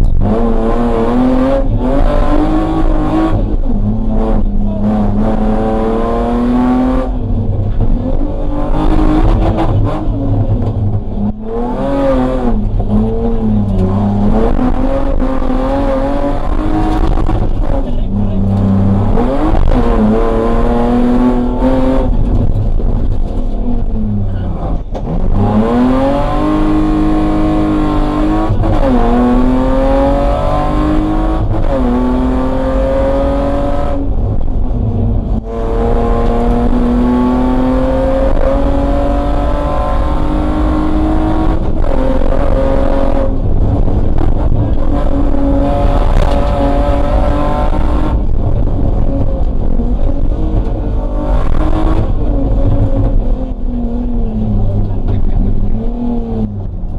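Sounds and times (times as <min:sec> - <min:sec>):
car engine revving from inside cabin: 0:25.2 - 0:56.7.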